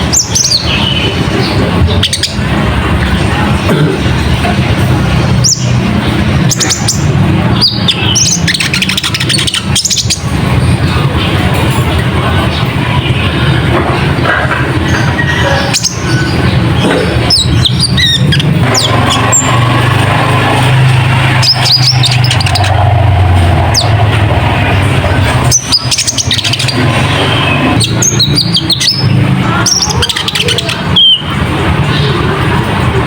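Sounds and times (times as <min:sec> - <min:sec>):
loud steady low rumble: 0:00.0 - 0:33.0
high downward-sweeping bird chirps: 0:20.5 - 0:31.4.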